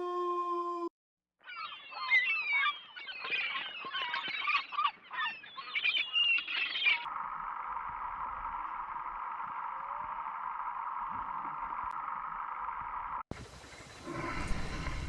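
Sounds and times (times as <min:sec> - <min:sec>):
small animals chirping and squeaking: 0:01.4 - 0:07.1.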